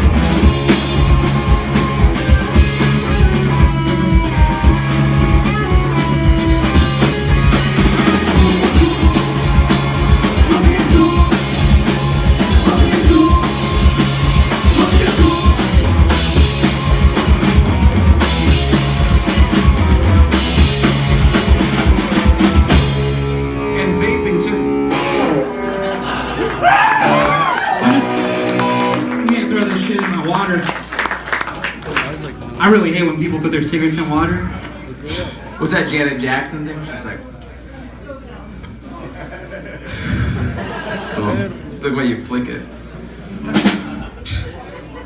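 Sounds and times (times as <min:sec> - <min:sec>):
drum kit beating: 0:00.0 - 0:23.7, 0:24.9 - 0:31.8, 0:43.3 - 0:44.6
live rock band playing: 0:00.0 - 0:34.0, 0:42.8 - 0:45.0.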